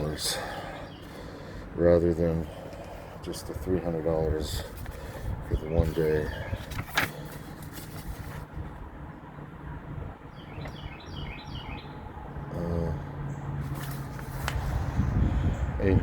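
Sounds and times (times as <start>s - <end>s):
bird chirping: 0.0s - 1.6s, 5.5s - 6.9s, 10.3s - 13.7s
steady low hum: 11.8s - 16.0s.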